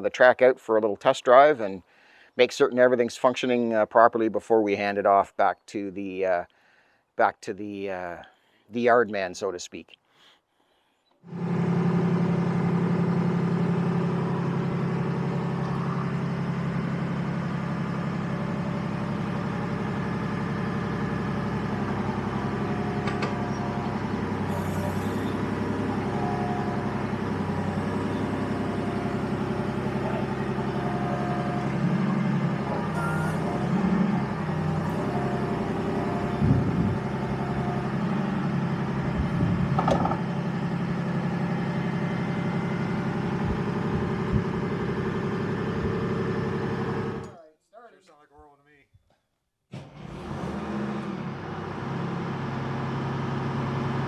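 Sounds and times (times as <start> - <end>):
armoured vehicle engine idling: 11.3 - 47.3.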